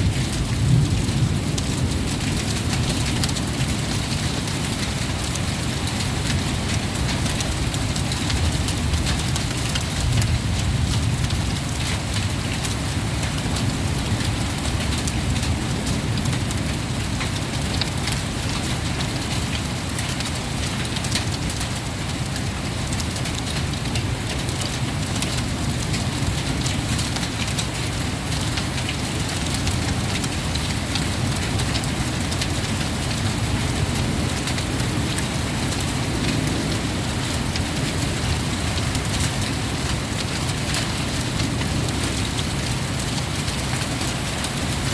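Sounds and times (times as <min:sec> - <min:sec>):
low thunder rumble: 0:00.0 - 0:19.1
heavy rain pouring: 0:00.0 - 0:44.9
raindrops tapping surfaces: 0:00.0 - 0:44.9.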